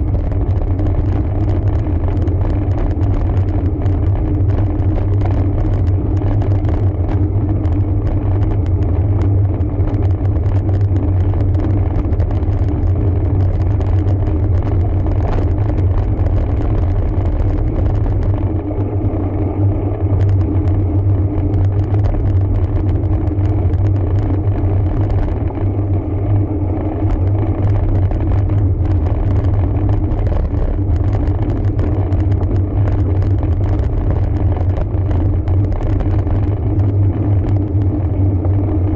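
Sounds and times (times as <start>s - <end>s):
bicycle tyre noise on road: 0.0s - 38.9s
wind rumble on microphone: 0.0s - 38.9s.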